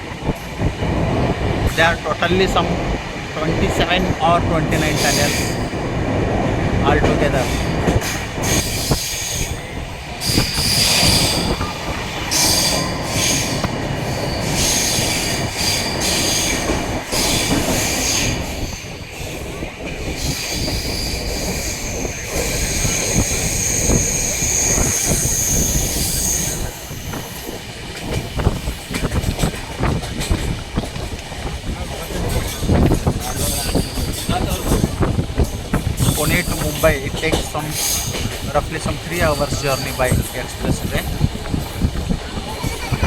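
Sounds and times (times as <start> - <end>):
train rumbling on rails: 0.0 - 43.0
train wheels squealing: 4.8 - 5.8, 7.3 - 27.6, 37.6 - 38.3, 39.0 - 40.3.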